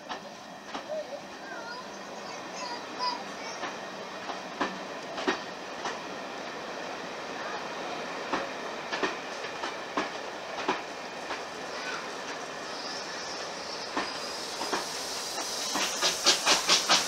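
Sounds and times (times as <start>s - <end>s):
wheels clicking over rail joints: 0.0s - 1.8s, 2.6s - 6.1s, 8.2s - 12.9s, 13.8s - 17.0s
train running rumble: 0.0s - 17.0s.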